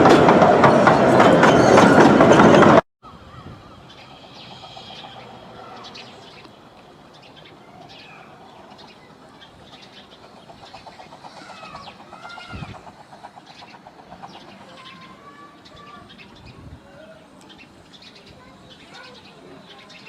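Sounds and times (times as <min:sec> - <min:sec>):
birds chirping and calling: 0:00.7 - 0:02.5.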